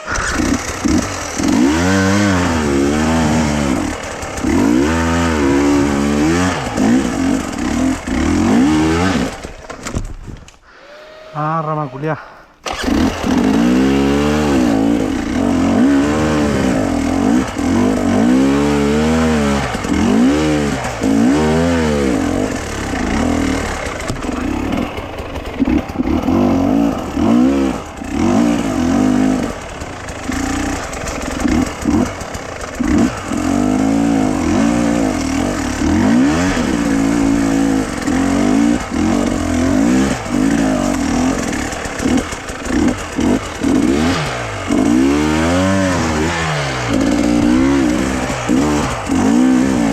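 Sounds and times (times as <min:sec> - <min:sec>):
vehicle engine revving under load: 0:00.0 - 0:09.6, 0:12.6 - 0:49.9.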